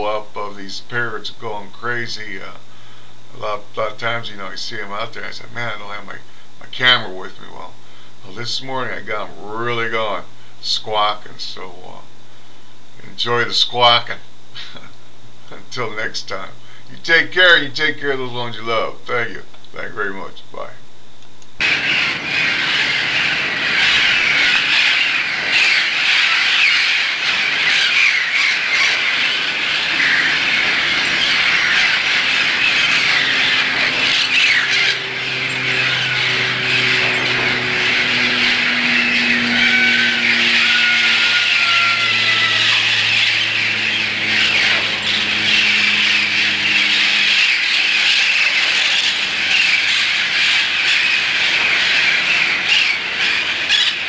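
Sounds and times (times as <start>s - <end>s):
low hum of held tones: 0.0s - 54.0s
parrots squawking: 21.6s - 54.0s.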